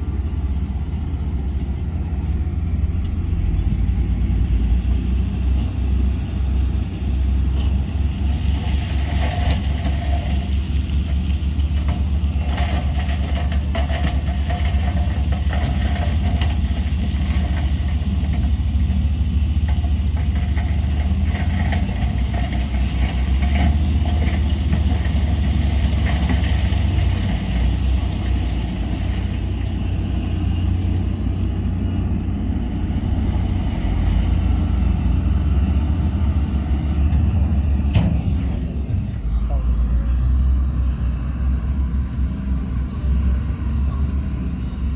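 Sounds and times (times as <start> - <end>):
heavy diesel engine rumbling: 0.0 - 44.9.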